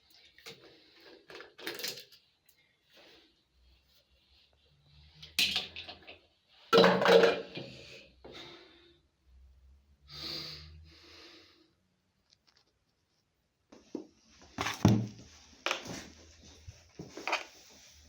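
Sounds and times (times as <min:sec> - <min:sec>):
hard objects clattering: 0:06.8 - 0:07.7.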